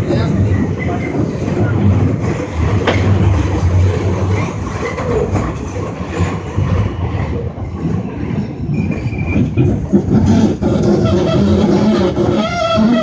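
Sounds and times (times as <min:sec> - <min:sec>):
subway car rumbling on track: 0:00.0 - 0:13.0
high wheel squeal: 0:08.5 - 0:13.0.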